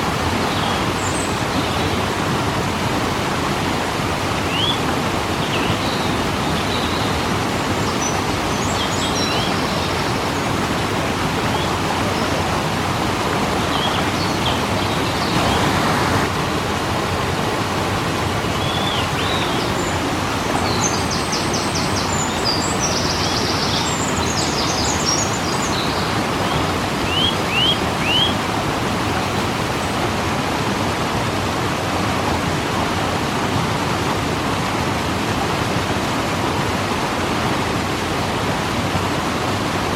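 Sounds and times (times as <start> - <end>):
waterfall rushing: 0.0 - 39.9
small birds chirping: 5.4 - 10.5, 18.5 - 28.4.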